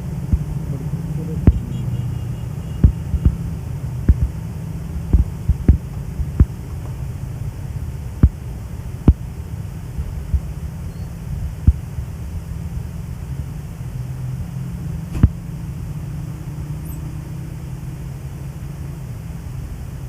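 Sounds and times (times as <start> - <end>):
train rumbling: 0.0 - 14.5.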